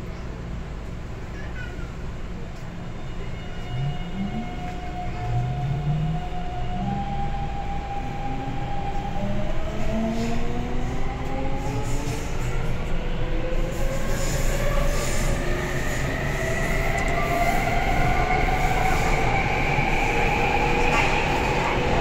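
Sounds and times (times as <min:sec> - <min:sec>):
wheels rumbling on rail: 0:00.0 - 0:22.0.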